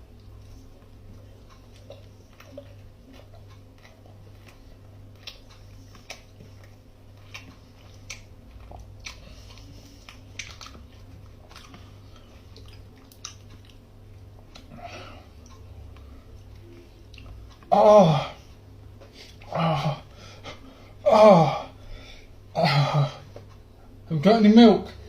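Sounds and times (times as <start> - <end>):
person chewing crunchy food: 0.0 - 20.2
steady low hum: 0.0 - 25.0.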